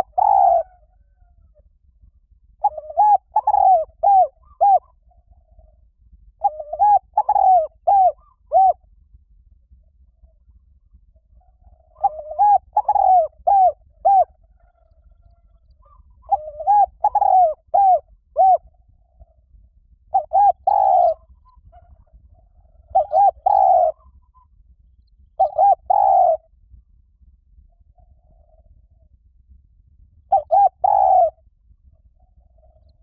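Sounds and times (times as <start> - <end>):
dove cooing: 0.0 - 1.7, 2.6 - 8.8, 11.2 - 19.4, 20.1 - 24.6, 25.4 - 26.5, 30.3 - 33.0.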